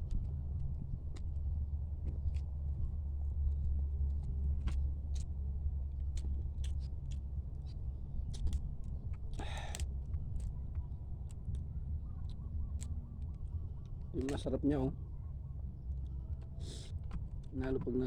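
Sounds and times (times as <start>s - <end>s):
low rumble: 0.0s - 18.0s
chewing crab shell cracks: 8.3s - 10.6s.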